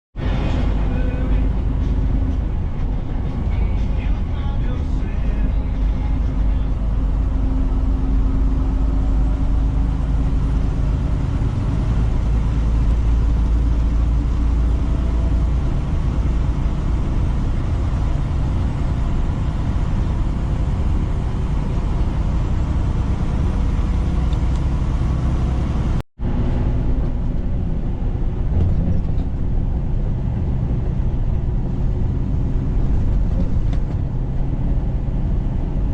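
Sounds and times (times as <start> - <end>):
truck engine and road rumble: 0.1 - 35.9.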